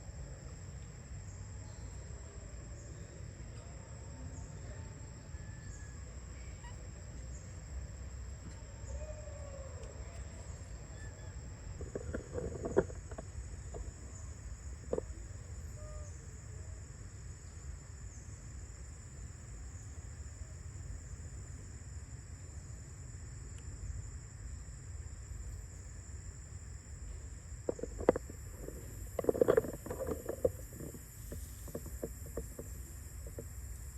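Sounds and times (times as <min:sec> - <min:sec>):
high insect drone: 0:00.0 - 0:33.9
faint animal calls: 0:03.6 - 0:07.6, 0:08.4 - 0:13.0, 0:14.9 - 0:16.6.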